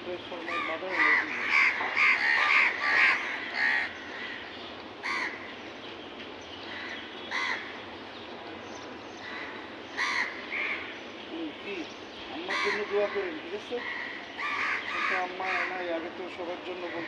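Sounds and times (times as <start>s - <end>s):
birds calling: 0.0s - 17.0s
steady background hiss: 0.0s - 17.0s.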